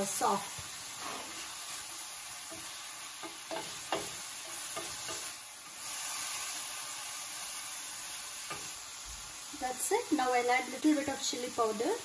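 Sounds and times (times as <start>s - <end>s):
carrots sizzling in a pot: 0.0s - 12.0s
spatula knocking against pot: 3.2s - 5.3s.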